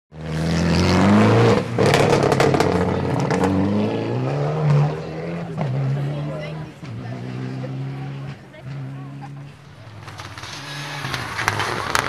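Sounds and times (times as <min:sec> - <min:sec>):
rally car engine revving: 0:00.1 - 0:12.0
sharp engine crackles: 0:07.4 - 0:12.0.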